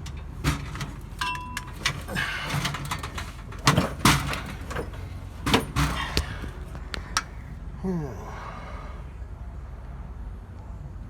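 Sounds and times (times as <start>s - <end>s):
sharp knocks and clunks: 0.0s - 7.6s.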